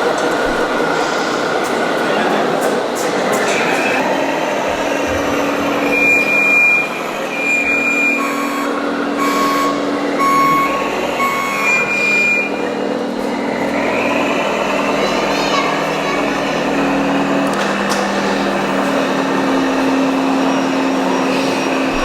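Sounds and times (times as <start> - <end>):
steady engine-like hum: 0.0 - 22.0
reversing alarm beeping: 5.8 - 14.6.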